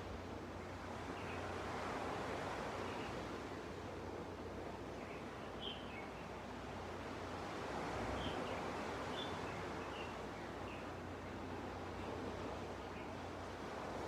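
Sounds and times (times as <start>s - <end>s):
ocean waves washing onto beach: 0.0s - 14.0s.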